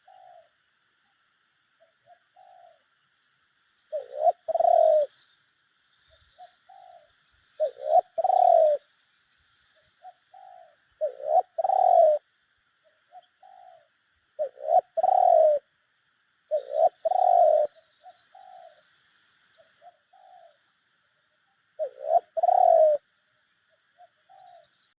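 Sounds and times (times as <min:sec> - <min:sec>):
doves cooing: 0:00.0 - 0:00.6, 0:01.8 - 0:02.9, 0:03.9 - 0:05.2, 0:06.4 - 0:08.9, 0:09.8 - 0:12.3, 0:13.1 - 0:15.7, 0:16.5 - 0:18.9, 0:19.6 - 0:20.7, 0:21.7 - 0:23.1, 0:23.8 - 0:24.9
faint high chirping: 0:00.0 - 0:24.9.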